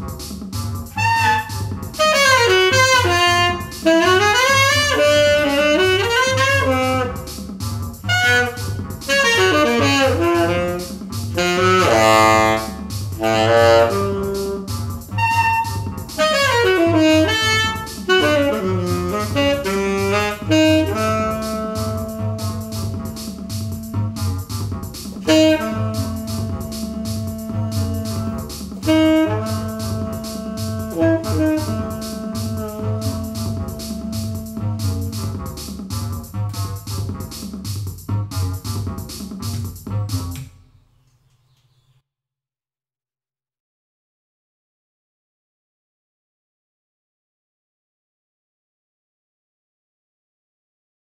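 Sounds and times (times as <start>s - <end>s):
bass and drum beat: 0.0s - 40.5s
saxophone melody: 0.8s - 37.0s.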